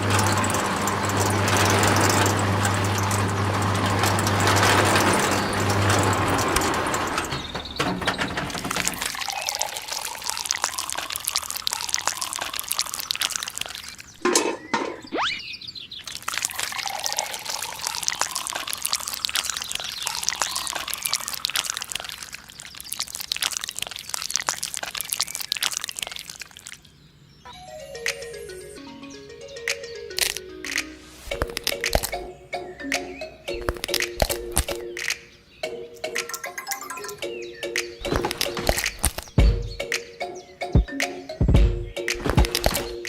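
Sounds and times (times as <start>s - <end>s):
crackling pouring of wet material: 0.0s - 14.2s, 15.8s - 27.1s, 31.2s - 32.2s, 33.6s - 34.8s, 38.0s - 39.4s, 42.3s - 43.0s.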